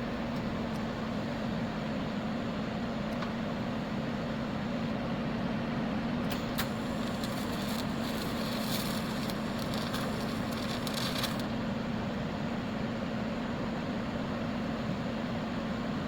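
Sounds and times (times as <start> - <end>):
steady electrical hum: 0.0 - 16.0
welding arc crackling: 6.3 - 11.6.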